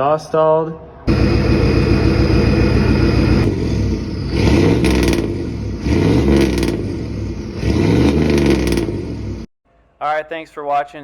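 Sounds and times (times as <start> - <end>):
pickup truck engine revving: 1.1 - 9.5.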